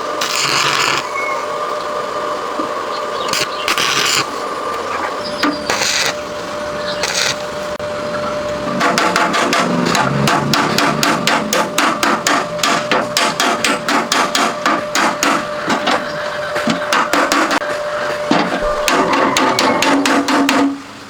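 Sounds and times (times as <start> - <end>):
hammer striking rapidly: 8.8 - 16.0, 16.6 - 17.7, 18.3 - 20.8.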